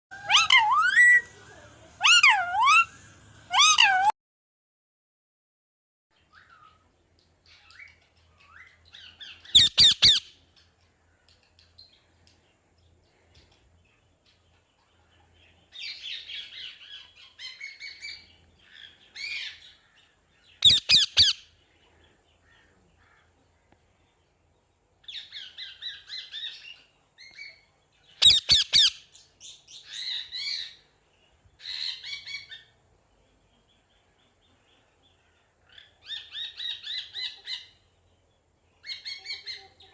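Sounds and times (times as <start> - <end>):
parrot squawking: 0.1 - 1.3, 2.0 - 4.1, 9.6 - 10.3, 20.6 - 21.4, 28.2 - 29.0
parrot chattering: 0.2 - 1.3, 2.0 - 2.9, 3.5 - 4.1, 9.6 - 10.2, 20.6 - 21.4.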